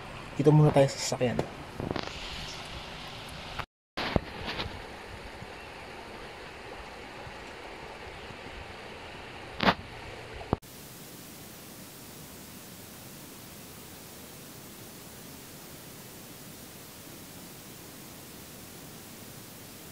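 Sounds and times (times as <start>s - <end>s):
even hiss: 0.0s - 4.9s, 10.6s - 19.9s.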